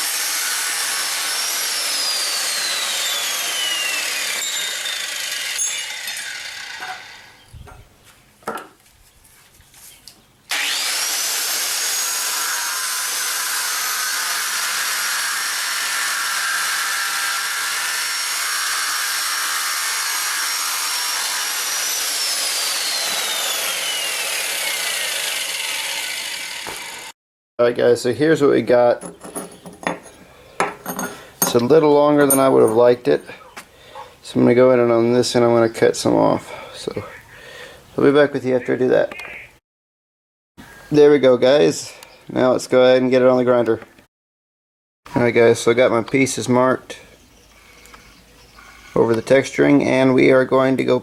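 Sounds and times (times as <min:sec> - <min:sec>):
electric grinder grinding steel: 0:00.0 - 0:07.4, 0:10.5 - 0:27.2.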